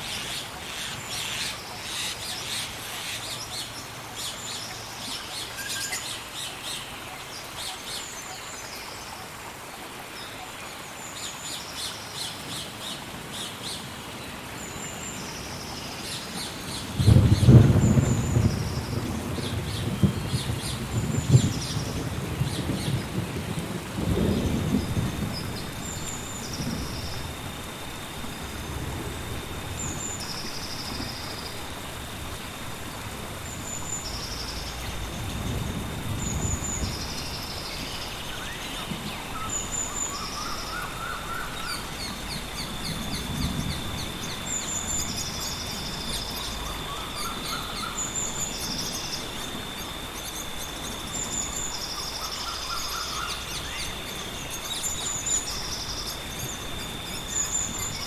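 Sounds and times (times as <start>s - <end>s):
high insect hum: 0.0s - 58.0s
steady rain: 0.0s - 58.0s
low thunder rumbles: 16.7s - 58.0s
low warbling bird call: 33.4s - 58.0s
bird calls: 33.5s - 58.0s.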